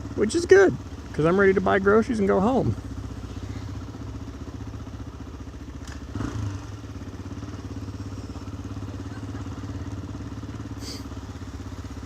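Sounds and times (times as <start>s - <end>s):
motorcycle engine running at low revs: 0.0s - 12.0s.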